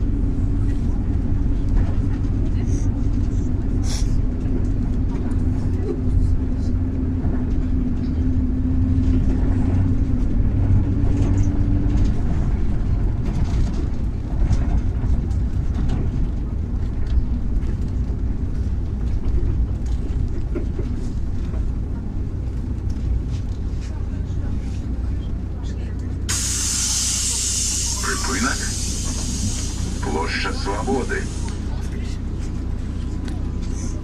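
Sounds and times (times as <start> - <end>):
bus engine and road rumble: 0.0 - 34.0.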